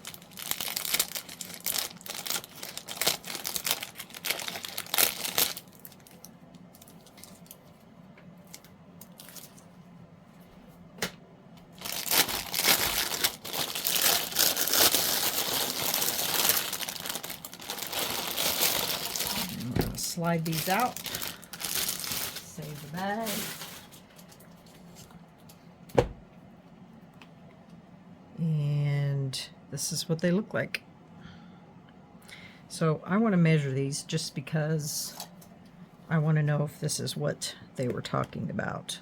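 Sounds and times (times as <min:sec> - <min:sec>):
plastic bag crinkling and rustling: 0:00.0 - 0:09.8, 0:11.7 - 0:25.1.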